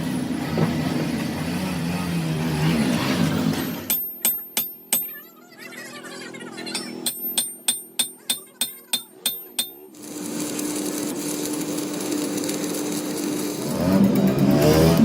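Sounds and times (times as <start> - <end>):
hammer striking metal: 3.5 - 5.2, 6.7 - 9.9
workshop machine humming: 6.2 - 15.0.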